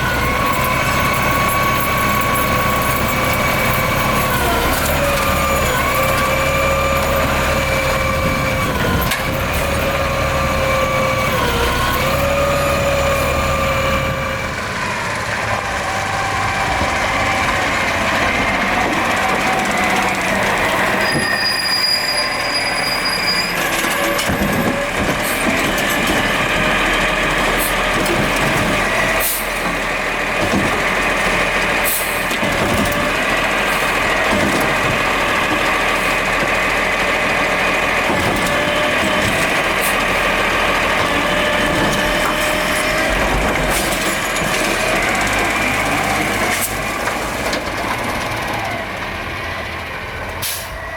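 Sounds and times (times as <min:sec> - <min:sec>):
garbage truck whine: 0:00.0 - 0:50.9
clanks and knocks: 0:30.4 - 0:30.9.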